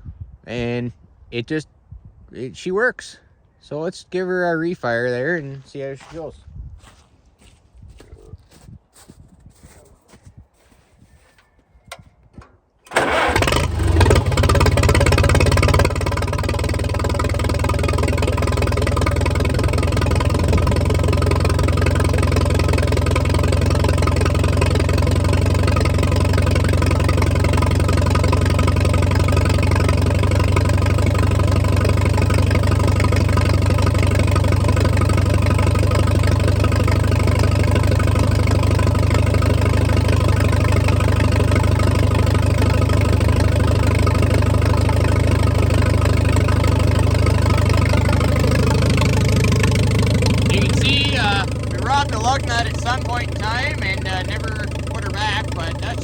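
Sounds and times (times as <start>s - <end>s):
tractor engine idling: 11.9s - 56.0s.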